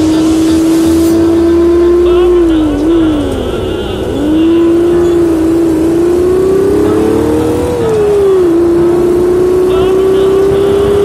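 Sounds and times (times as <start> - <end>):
simulated motorcycle exhaust: 0.0 - 11.0.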